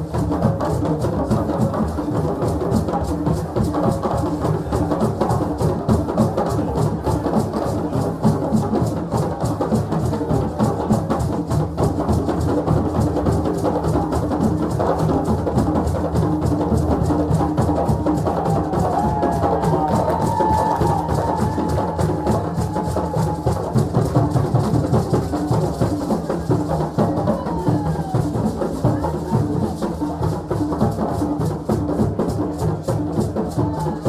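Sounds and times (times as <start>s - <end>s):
fast hand drumming: 0.0s - 34.0s.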